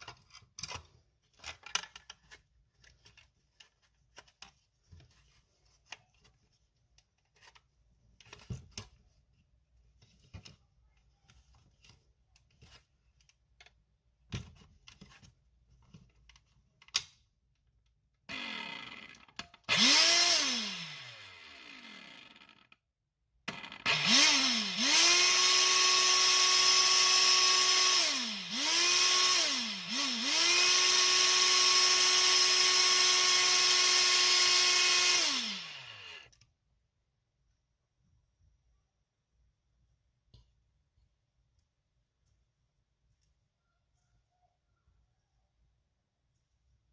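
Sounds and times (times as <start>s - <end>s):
clicks and knocks of handling: 0.0s - 9.2s
stick vacuum motor whine: 18.3s - 22.6s, 23.5s - 36.3s.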